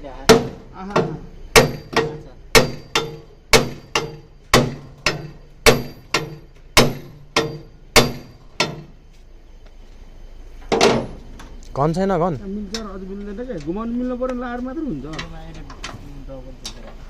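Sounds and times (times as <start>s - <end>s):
hammer striking steel: 0.3s - 9.0s.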